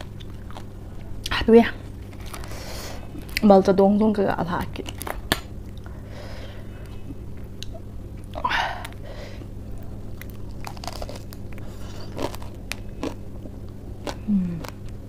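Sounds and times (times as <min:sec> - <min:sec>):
crunching lettuce while chewing: 0:00.0 - 0:03.4, 0:10.0 - 0:15.0.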